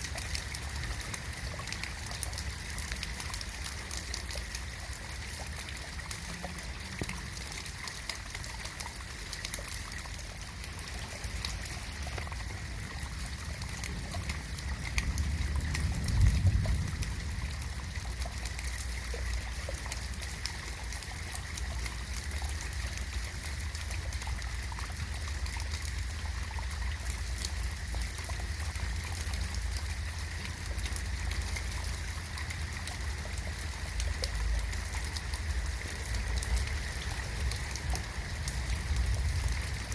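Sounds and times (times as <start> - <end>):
drips and trickling water: 0.0 - 39.9
steady rain: 0.0 - 39.9
low rumble: 12.5 - 18.8.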